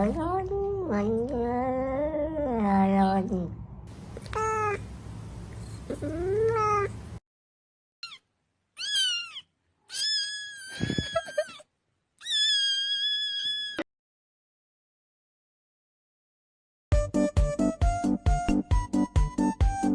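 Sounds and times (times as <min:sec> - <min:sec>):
background hiss: 0:03.9 - 0:07.2
cat meowing: 0:04.3 - 0:04.9, 0:05.9 - 0:07.0, 0:08.0 - 0:08.2, 0:08.8 - 0:11.6, 0:12.2 - 0:13.8.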